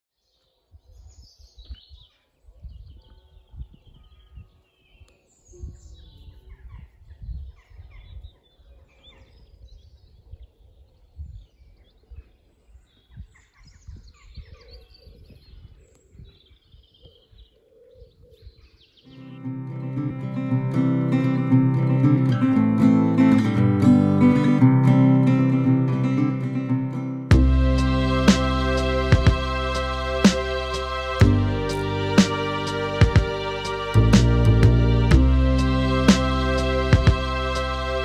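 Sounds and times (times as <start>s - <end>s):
low rumbling: 27.3s - 38.0s.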